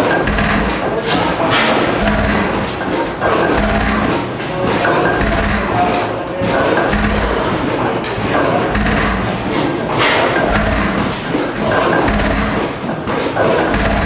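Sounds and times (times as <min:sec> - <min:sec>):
mechanical clatter: 0:00.0 - 0:14.0
stationary gas engine running: 0:00.0 - 0:14.0
low exhaust thump: 0:00.2 - 0:02.8, 0:03.5 - 0:04.3, 0:05.2 - 0:06.0, 0:06.9 - 0:07.8, 0:08.7 - 0:12.8, 0:13.7 - 0:14.0.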